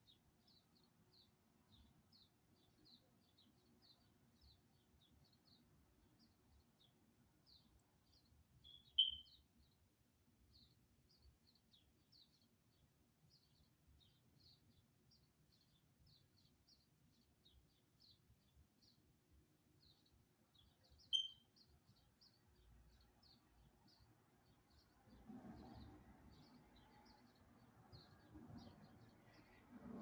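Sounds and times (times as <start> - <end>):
small birds chirping: 0.0 - 30.0
louder single bird chirp: 8.6 - 9.4, 21.1 - 21.6.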